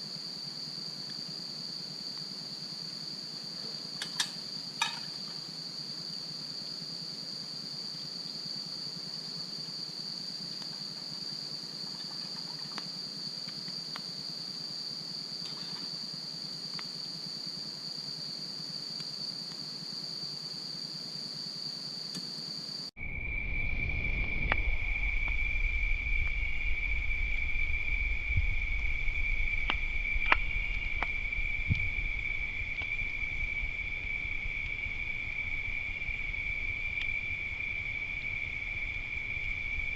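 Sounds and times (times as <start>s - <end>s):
insects trilling: 0.0s - 39.9s
campfire popping: 3.8s - 6.8s, 9.5s - 14.2s, 27.7s - 39.9s
low rumble: 23.0s - 39.9s.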